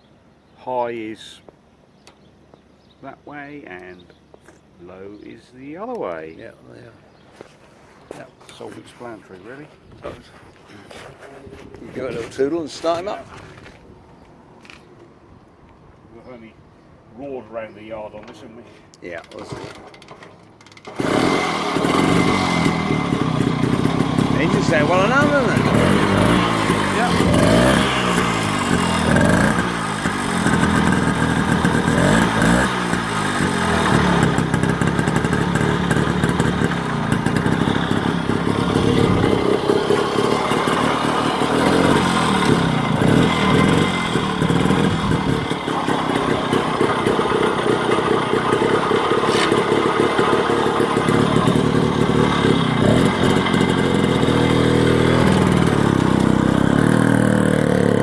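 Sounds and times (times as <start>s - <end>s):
motorcycle two-stroke engine revving: 19.4s - 58.0s.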